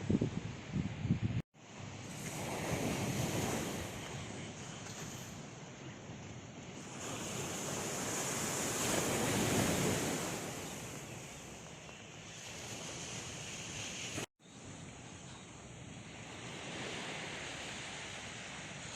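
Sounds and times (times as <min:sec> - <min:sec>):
wind buffeting microphone: 0:00.0 - 0:01.4
sea waves crashing on beach: 0:01.6 - 0:05.6, 0:06.6 - 0:14.3, 0:16.0 - 0:18.9.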